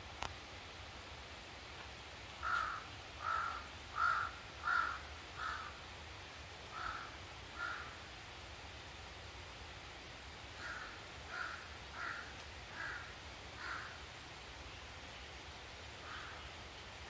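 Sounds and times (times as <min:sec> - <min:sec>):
bird harsh calls: 0:02.4 - 0:05.8, 0:16.0 - 0:16.6.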